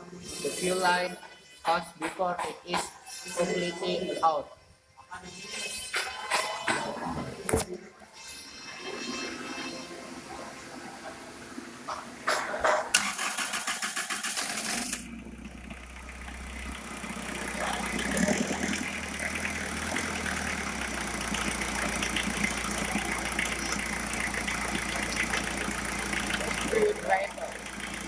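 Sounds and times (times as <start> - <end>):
diesel engine cranking and idling: 11.6 - 28.0.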